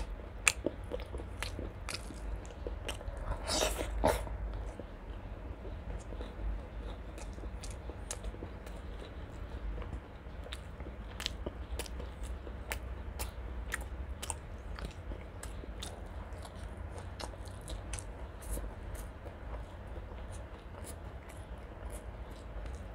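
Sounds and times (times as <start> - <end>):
wet chewing clicks and crunches: 0.0 - 22.9.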